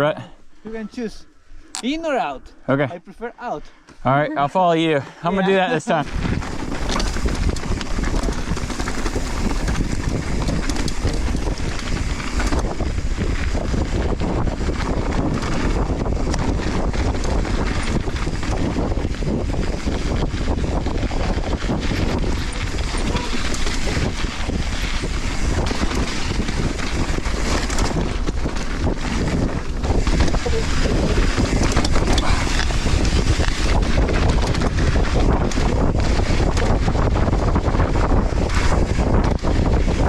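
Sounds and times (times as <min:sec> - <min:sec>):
wind buffeting microphone: 0:05.3 - 0:40.0
tyres running over dirt: 0:05.7 - 0:40.0
bike rattling and knocking: 0:05.8 - 0:40.0.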